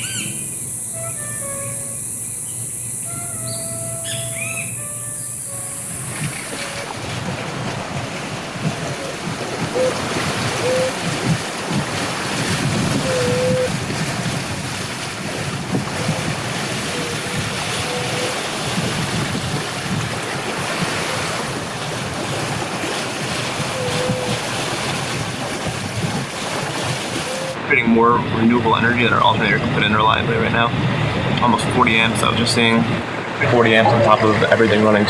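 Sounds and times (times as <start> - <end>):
faint short squeaks: 0.0 - 7.0
water rushing along hull: 0.0 - 35.0
wind buffeting microphone: 0.0 - 35.0.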